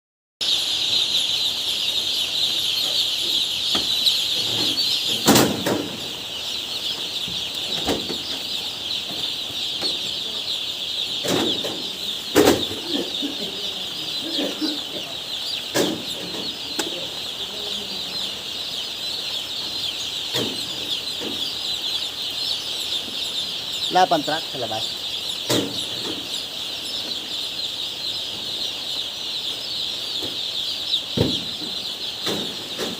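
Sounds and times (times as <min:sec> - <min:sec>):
chickens peeping and clucking: 0:00.4 - 0:32.9.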